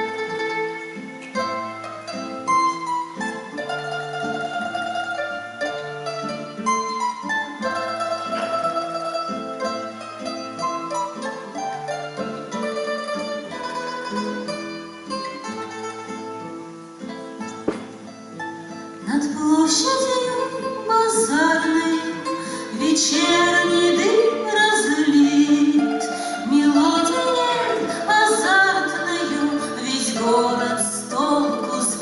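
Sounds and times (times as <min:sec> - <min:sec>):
plucked-string accompaniment: 0:00.0 - 0:32.0
person singing: 0:19.0 - 0:32.0.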